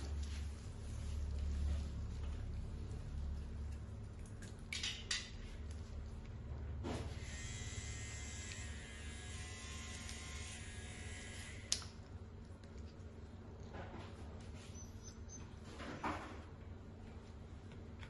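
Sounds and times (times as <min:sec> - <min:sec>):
electric hair clippers running: 0:07.2 - 0:11.8.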